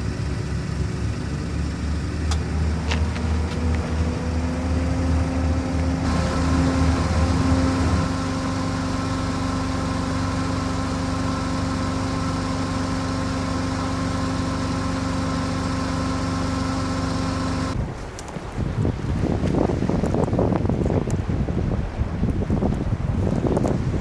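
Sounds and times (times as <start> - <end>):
engine idling drone: 0.0 - 17.8.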